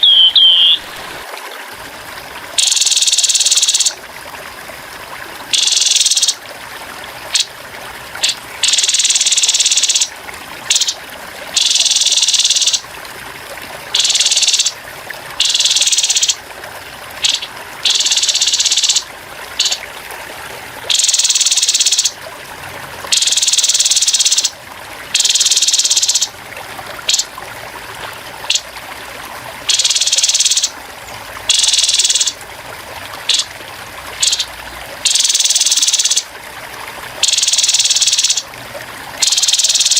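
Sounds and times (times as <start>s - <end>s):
trickling water: 0.0s - 39.9s
bird giving buzzy rattling calls: 2.6s - 3.9s, 5.5s - 6.4s, 8.2s - 10.1s, 10.7s - 11.0s, 11.6s - 12.8s, 14.0s - 14.8s, 15.4s - 16.4s, 17.2s - 19.0s, 19.6s - 19.8s, 20.9s - 22.1s, 23.1s - 24.5s, 25.2s - 26.3s, 27.1s - 27.3s, 29.7s - 30.7s, 31.5s - 32.4s, 34.2s - 36.2s, 37.2s - 38.4s, 39.2s - 39.9s.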